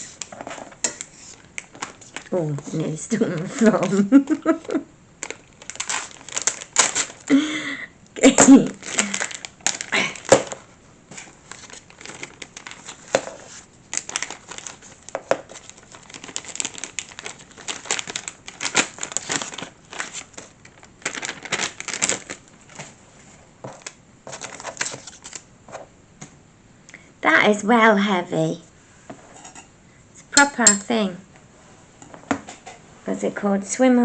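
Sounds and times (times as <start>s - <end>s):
plastic packaging crinkling: 0.0s - 7.4s, 8.5s - 25.5s.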